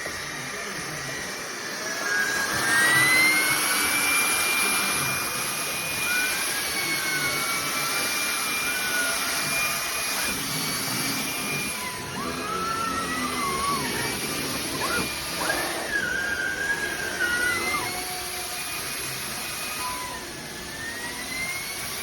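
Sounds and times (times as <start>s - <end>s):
vacuum cleaner motor whine: 0.0s - 22.0s.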